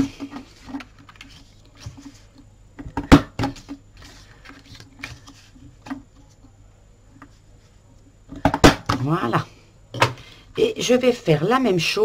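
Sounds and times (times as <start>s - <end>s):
paper rustling: 0.1s - 2.4s, 3.5s - 6.4s.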